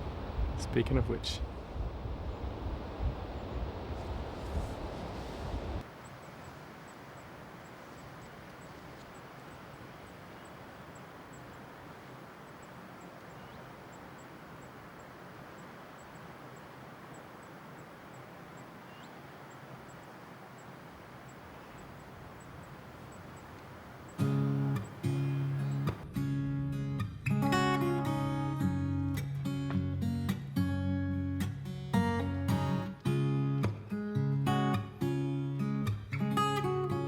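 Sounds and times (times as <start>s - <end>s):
outdoor background hiss: 0.0s - 26.1s.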